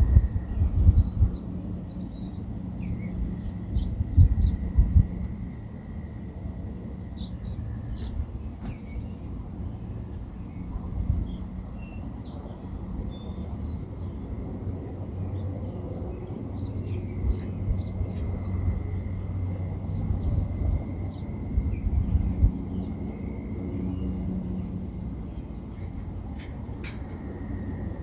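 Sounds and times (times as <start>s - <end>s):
wind rumbling on microphone: 0.0s - 28.0s.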